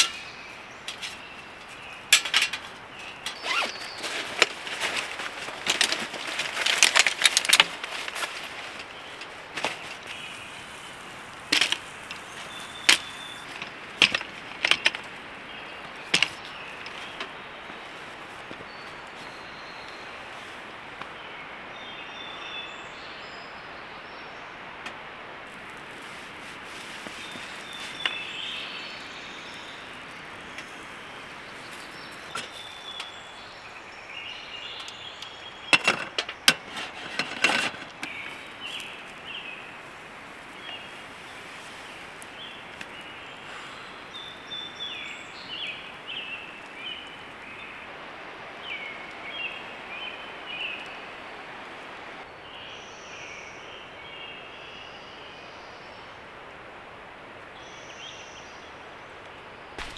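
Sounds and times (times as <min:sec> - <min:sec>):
small birds chirping: 0:00.0 - 0:56.1
steady outdoor hiss: 0:00.0 - 0:59.9
campfire crackling and popping: 0:01.0 - 0:15.5.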